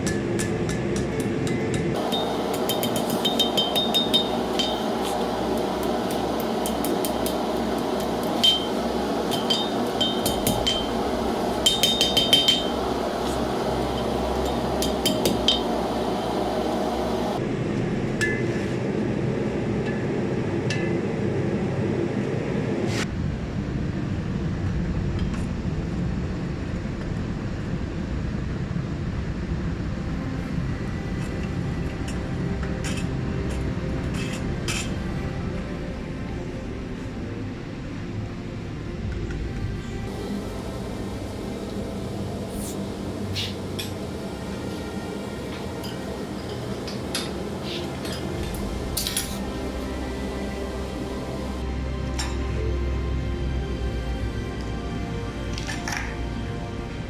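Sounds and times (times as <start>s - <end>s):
steady rushing noise: 1.9s - 18.2s, 36.6s - 52.0s
hammer striking steel on anvil: 2.0s - 17.4s, 44.6s - 49.6s.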